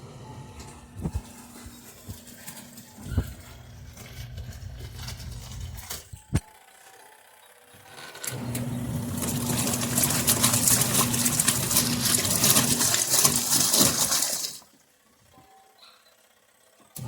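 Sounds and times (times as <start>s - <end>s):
washing machine motor humming: 0.0s - 17.0s
water churning and splashing: 9.0s - 14.7s.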